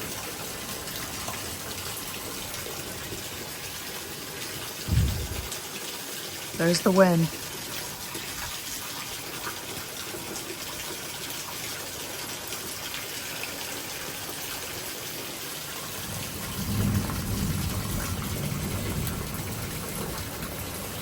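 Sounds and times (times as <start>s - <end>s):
heavy rain pouring: 0.0s - 21.0s
low thunder rumble: 4.9s - 5.6s, 16.1s - 20.9s.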